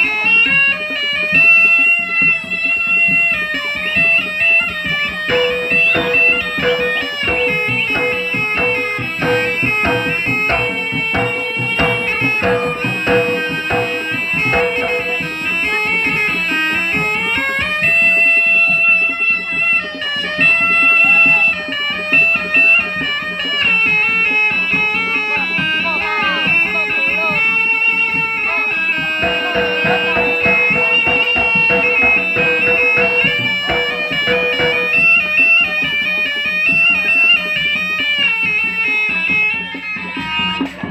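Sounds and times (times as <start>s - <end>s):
quick drum strokes: 5.2s - 16.2s, 29.0s - 35.6s
shrill reed trumpet melody: 5.3s - 15.6s, 29.1s - 35.6s.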